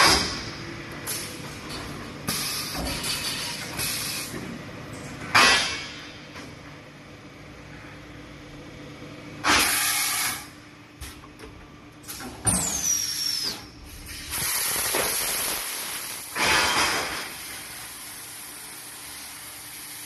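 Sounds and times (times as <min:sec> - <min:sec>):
steady machine hum: 0:00.0 - 0:20.0
bursts of hissing air: 0:12.8 - 0:20.0.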